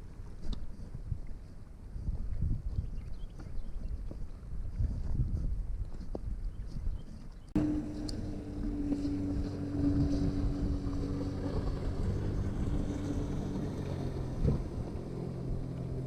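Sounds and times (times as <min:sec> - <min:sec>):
engine hum: 0:07.6 - 0:16.0.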